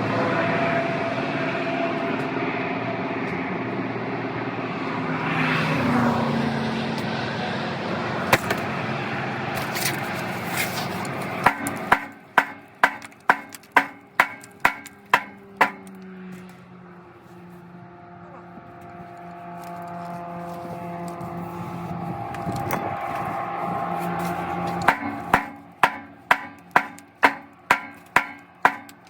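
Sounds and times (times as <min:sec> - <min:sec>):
mechanical drone: 0:00.0 - 0:12.8, 0:15.8 - 0:28.2
hammer ringing on metal: 0:11.4 - 0:15.9, 0:24.7 - 0:29.0.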